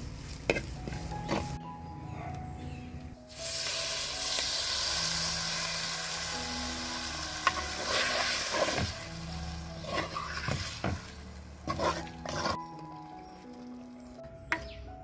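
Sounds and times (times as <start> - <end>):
food sizzling in hot oil: 3.3 - 13.2
wooden spoon scraping a pot: 9.8 - 12.7.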